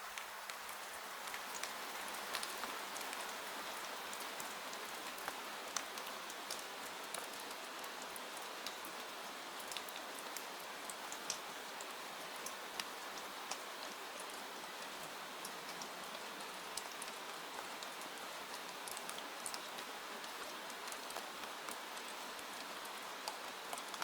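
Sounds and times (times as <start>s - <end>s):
steady rain with ticks: 0.0s - 24.0s.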